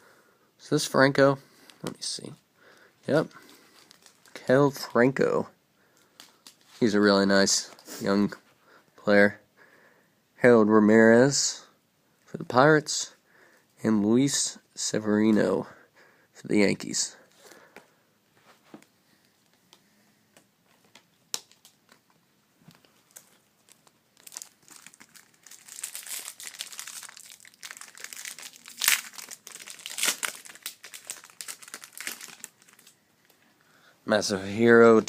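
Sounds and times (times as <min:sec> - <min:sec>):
foil wrapper tearing and crinkling: 0:23.1 - 0:33.0.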